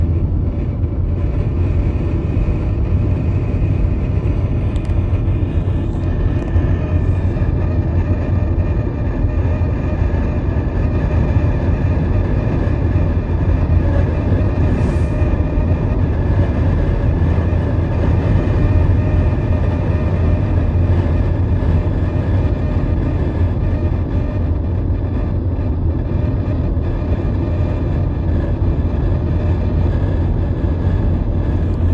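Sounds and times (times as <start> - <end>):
road rumble: 0.0 - 21.9
high-pitched squeal: 14.3 - 16.0.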